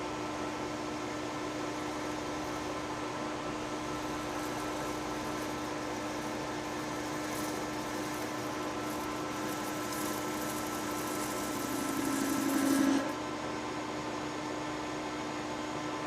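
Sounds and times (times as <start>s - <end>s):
metal lathe humming: 0.9s - 13.3s
lathe cutting metal: 1.4s - 13.2s.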